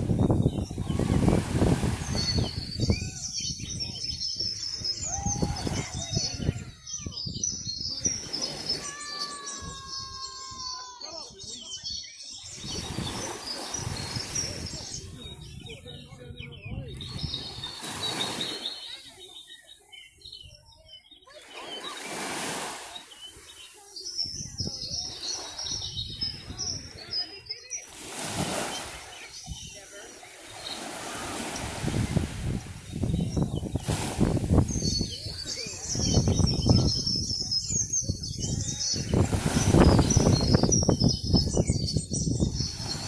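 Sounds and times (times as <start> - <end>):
surf washing: 0.0 - 7.1, 7.9 - 11.4, 12.5 - 19.4, 21.3 - 37.1, 38.5 - 41.1, 42.5 - 43.0
small birds chirping: 0.0 - 43.0.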